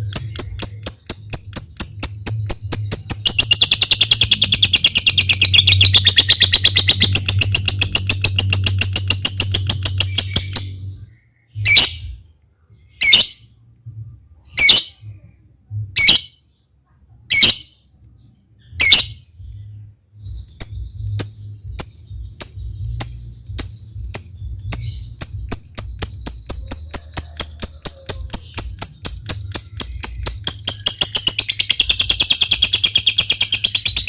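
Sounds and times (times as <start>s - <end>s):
lovebird chattering: 0.0s - 10.8s, 20.5s - 34.0s
sharp bird calls: 0.0s - 13.5s, 20.3s - 34.0s.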